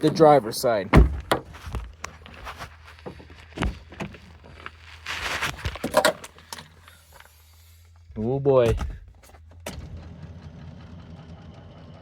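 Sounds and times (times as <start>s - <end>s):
knocks and clicks of handling: 8.6s - 9.8s.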